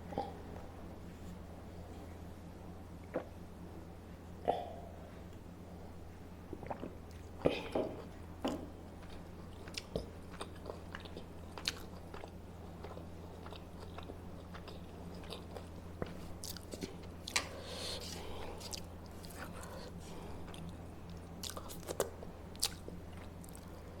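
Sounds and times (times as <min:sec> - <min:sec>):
steady low hum: 0:00.0 - 0:24.0
person chewing and biting food: 0:09.0 - 0:23.8.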